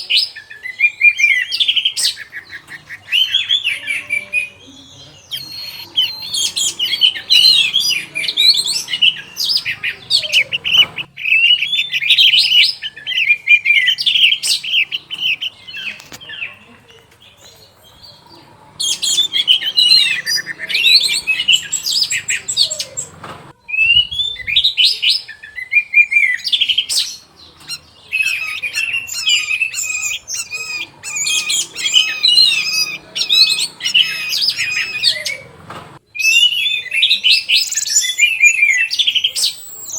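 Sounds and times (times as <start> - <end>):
thrush singing: 0.0 - 39.9.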